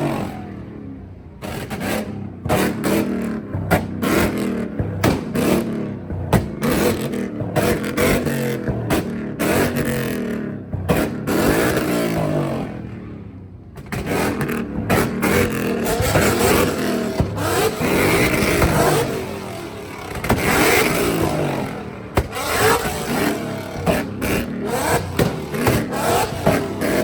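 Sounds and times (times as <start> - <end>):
car engine revving: 0.0 - 27.0
exhaust pops and cracks: 1.3 - 12.9, 13.7 - 27.0.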